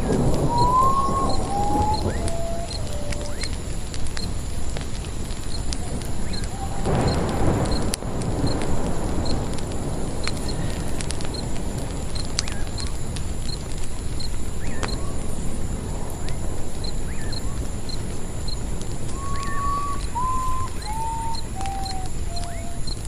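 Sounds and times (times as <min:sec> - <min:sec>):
bird whistled song: 0:00.0 - 0:03.6, 0:06.1 - 0:07.9, 0:14.6 - 0:15.2, 0:16.2 - 0:18.0, 0:19.1 - 0:23.0
campfire crackling and hissing: 0:00.0 - 0:23.0
faint high ticking: 0:00.0 - 0:23.0.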